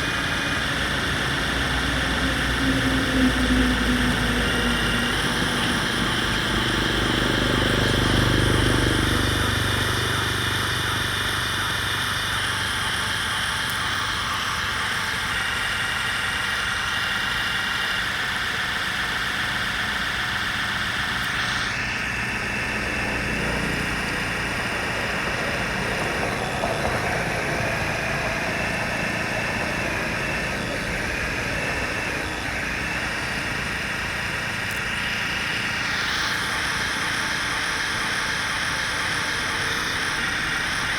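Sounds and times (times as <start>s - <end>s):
electric motors whining: 0.0s - 40.9s.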